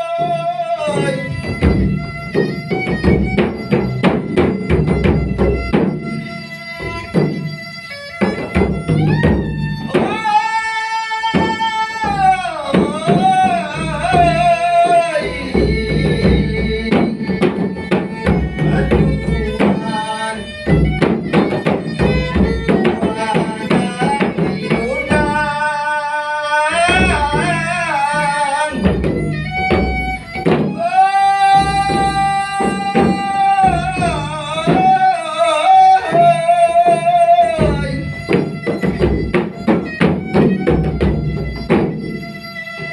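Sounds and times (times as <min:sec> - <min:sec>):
steady drum beat: 0:00.1 - 0:25.7, 0:26.8 - 0:42.9
person singing long wavering notes: 0:09.8 - 0:17.6, 0:18.2 - 0:20.8, 0:22.0 - 0:29.2, 0:30.2 - 0:38.2.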